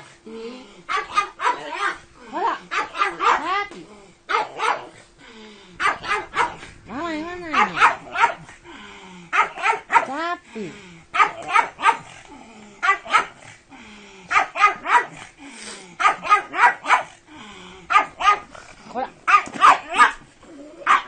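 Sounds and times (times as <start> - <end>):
dog barking excitedly: 0.9 - 3.7, 4.3 - 5.0, 5.8 - 6.8, 7.4 - 8.6, 9.3 - 10.3, 11.1 - 12.2, 12.8 - 13.5, 14.3 - 15.3, 16.0 - 17.2, 17.9 - 18.5, 19.2 - 21.0.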